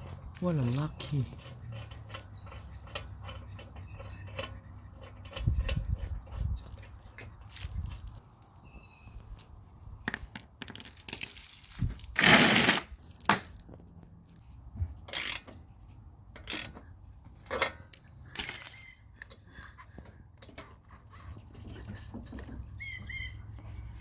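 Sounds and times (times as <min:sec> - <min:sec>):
metal rattling scrape: 0:00.0 - 0:08.1, 0:11.0 - 0:13.0
small metal tools clinking: 0:10.1 - 0:11.8, 0:17.4 - 0:19.0.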